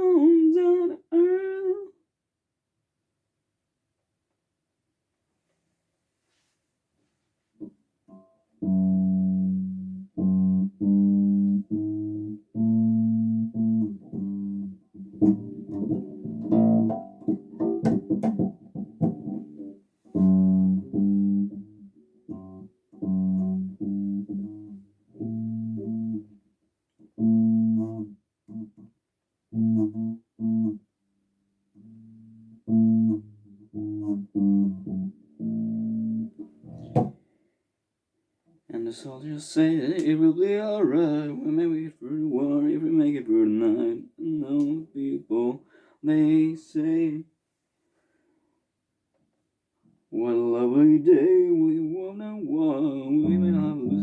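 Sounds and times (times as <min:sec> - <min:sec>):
electric bass guitar notes: 0:08.6 - 0:26.4, 0:27.2 - 0:28.8, 0:29.5 - 0:30.8, 0:31.8 - 0:37.2, 0:53.0 - 0:54.0.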